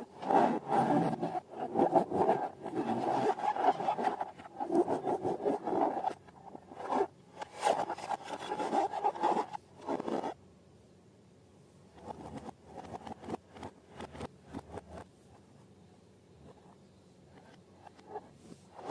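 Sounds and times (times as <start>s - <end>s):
rubbery rubbing and scraping: 0.0s - 10.4s, 12.0s - 15.4s.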